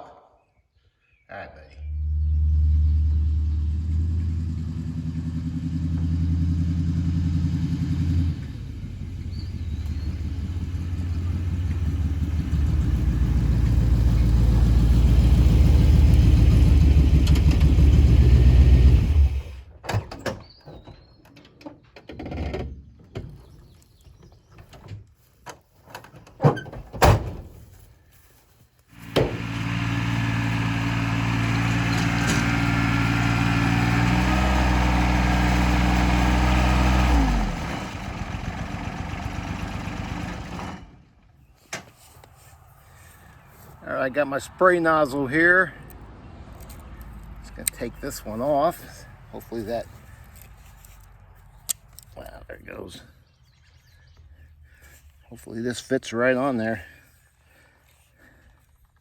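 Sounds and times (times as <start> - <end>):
engine running: 1.8 - 19.7, 28.9 - 52.5.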